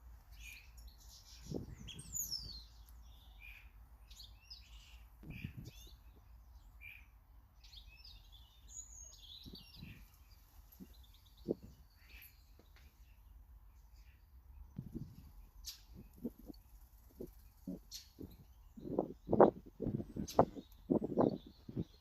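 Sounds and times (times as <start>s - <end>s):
garden birds chirping: 0.0s - 22.0s
soft low thumps: 14.8s - 15.3s, 17.7s - 22.0s.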